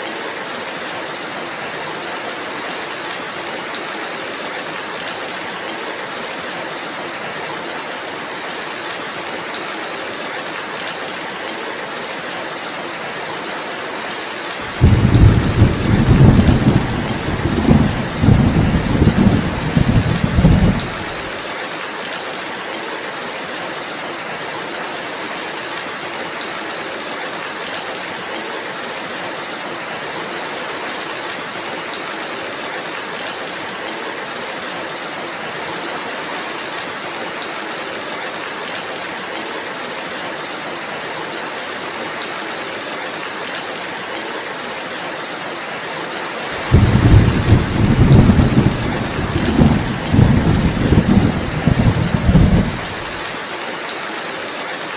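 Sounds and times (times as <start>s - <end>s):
steady rain hiss: 0.0s - 54.9s
rumbling thunder: 14.7s - 21.2s, 46.6s - 53.1s.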